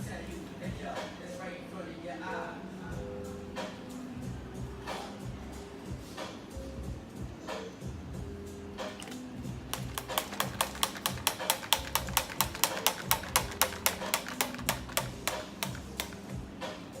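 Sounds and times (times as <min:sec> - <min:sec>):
cocktail shaker rattling: 0:09.7 - 0:16.3.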